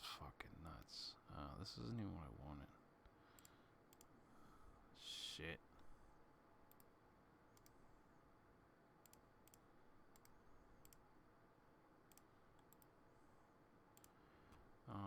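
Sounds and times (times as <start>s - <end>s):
faint computer mouse clicks: 3.3s - 4.2s, 6.7s - 6.9s, 7.5s - 7.8s, 9.0s - 11.0s, 12.1s - 13.0s, 14.0s - 14.7s.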